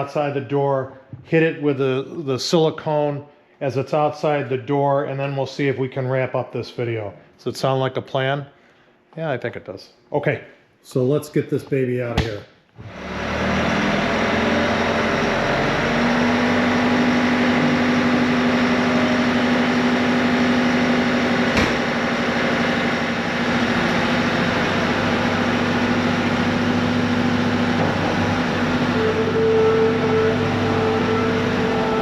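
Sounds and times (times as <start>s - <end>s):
diesel engine humming: 12.8s - 32.0s
higher steady tone: 14.7s - 32.0s.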